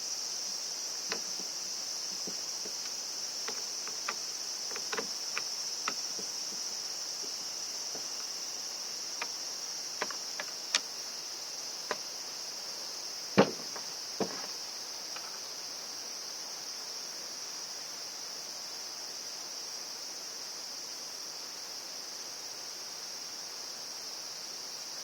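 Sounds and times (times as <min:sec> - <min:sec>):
crickets chirring: 0:00.0 - 0:25.0.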